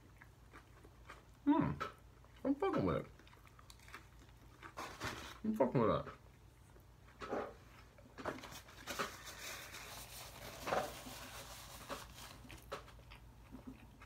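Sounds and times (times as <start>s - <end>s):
person chewing food: 0.0s - 5.4s, 6.0s - 14.0s.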